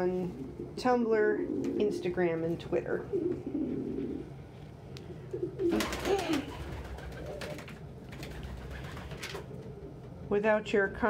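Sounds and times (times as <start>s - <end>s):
pigeons cooing: 0.3s - 2.1s, 2.9s - 10.1s.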